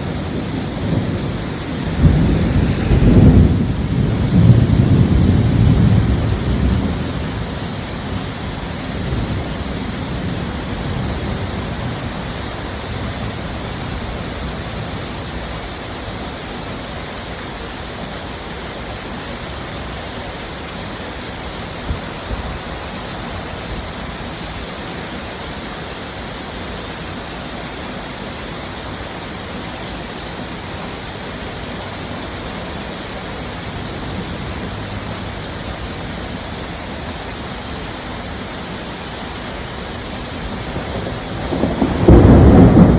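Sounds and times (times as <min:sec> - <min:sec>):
thunder rumble: 0:00.0 - 0:12.2, 0:32.0 - 0:37.8, 0:39.7 - 0:42.9
heavy rain: 0:00.0 - 0:42.9.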